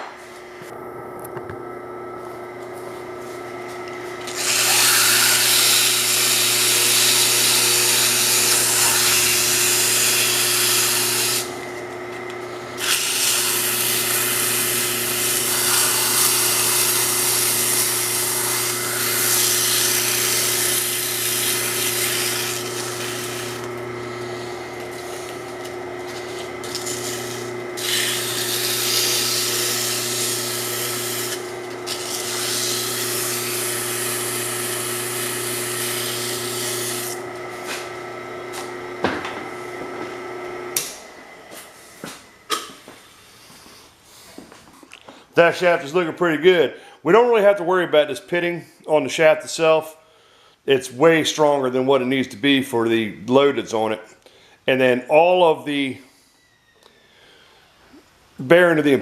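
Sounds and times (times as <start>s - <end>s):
motor humming: 0.0s - 42.5s
file rasping on spinning shaft: 4.2s - 11.6s, 12.6s - 37.9s.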